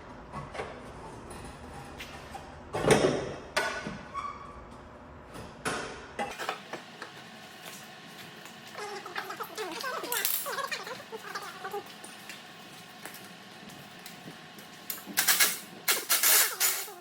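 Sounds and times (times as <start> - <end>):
short squeaky scrapes: 15.2 - 17.0.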